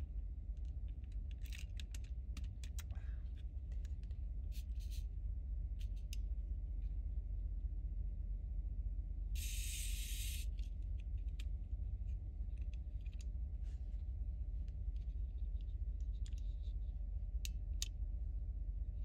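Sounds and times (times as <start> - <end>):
steady low hum: 0.0 - 19.0
plastic toy parts clicking: 1.1 - 2.9.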